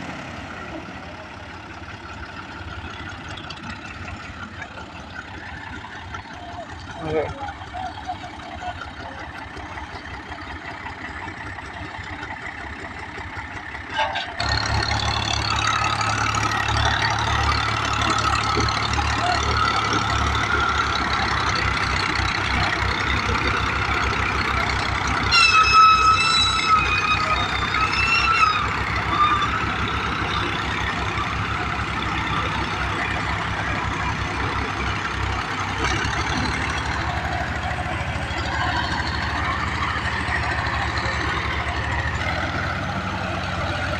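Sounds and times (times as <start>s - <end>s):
tractor diesel engine rumbling: 0.0s - 43.9s
wavering pitched horn or shout: 25.2s - 30.5s.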